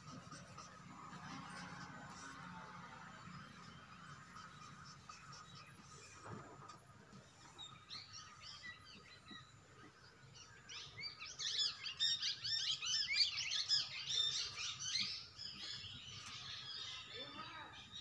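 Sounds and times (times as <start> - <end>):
small birds chirping: 3.2 - 18.0.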